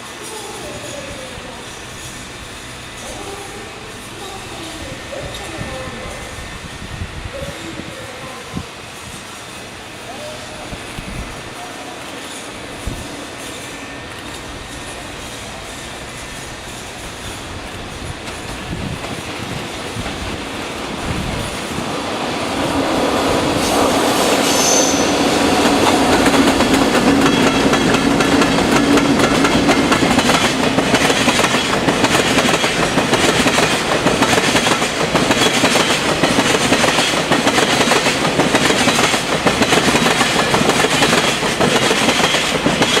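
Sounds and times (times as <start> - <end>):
train wheels clattering over rails: 0.0 - 43.0
high wheel squeal: 23.6 - 25.7.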